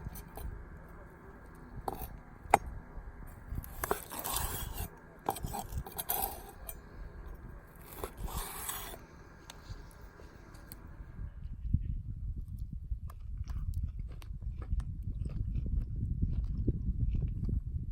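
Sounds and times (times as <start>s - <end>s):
cutlery scraping on a plate: 1.9s - 2.6s, 3.6s - 6.8s, 7.8s - 9.0s
chewing: 3.6s - 6.9s, 7.7s - 10.8s, 13.1s - 17.5s.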